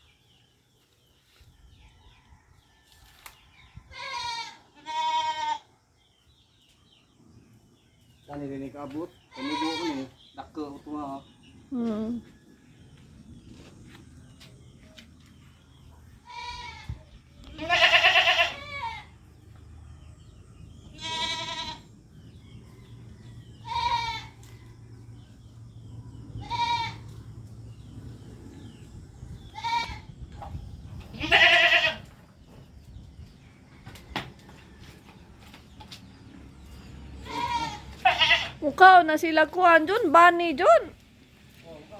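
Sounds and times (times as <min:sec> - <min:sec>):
goat bleating: 0:03.9 - 0:05.7, 0:09.3 - 0:10.2, 0:16.2 - 0:19.1, 0:20.9 - 0:21.9, 0:23.6 - 0:24.4, 0:26.4 - 0:27.0, 0:29.5 - 0:30.1, 0:31.1 - 0:32.0, 0:37.2 - 0:38.6.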